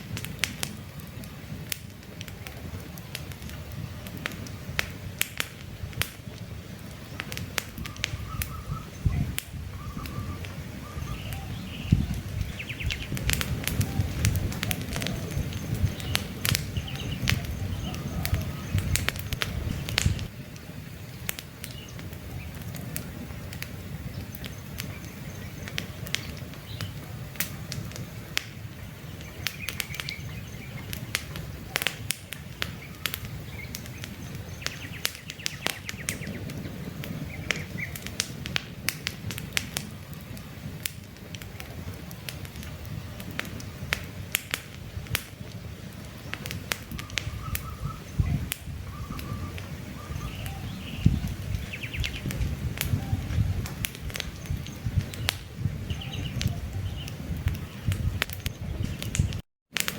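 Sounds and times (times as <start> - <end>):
campfire crackling and popping: 0.0 - 59.9
low rumble of flame: 0.0 - 59.9
faint bird chirps: 7.8 - 13.2, 15.0 - 19.0, 46.9 - 53.6.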